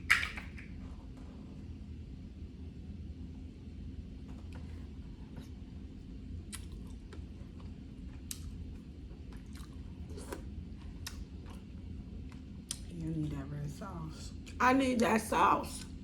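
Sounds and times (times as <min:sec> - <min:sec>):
chewing crab legs: 0:04.4 - 0:13.0.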